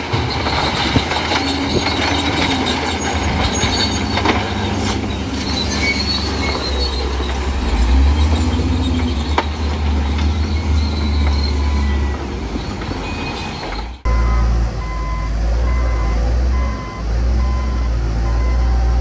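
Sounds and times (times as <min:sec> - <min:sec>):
bulldozer diesel engine droning: 0:00.0 - 0:19.0
reversing alarm beeping: 0:10.5 - 0:12.2, 0:13.0 - 0:19.0.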